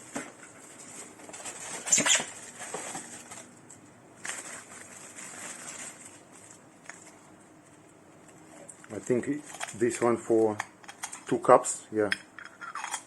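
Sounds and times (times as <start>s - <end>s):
packaging rustling: 0.8s - 3.6s, 4.2s - 7.3s.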